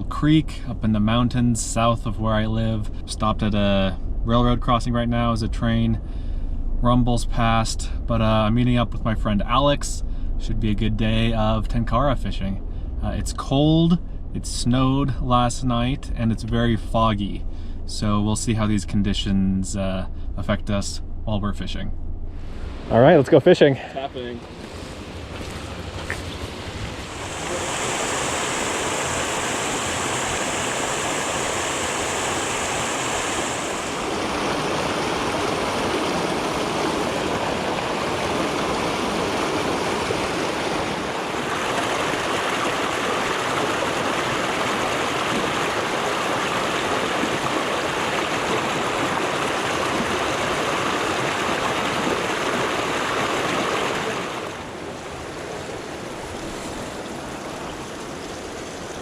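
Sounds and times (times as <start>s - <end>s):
creek water rushing: 22.4s - 59.0s.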